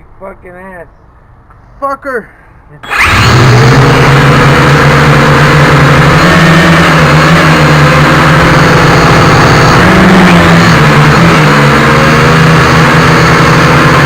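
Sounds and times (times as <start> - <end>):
quadcopter motors whirring: 2.8 - 14.0.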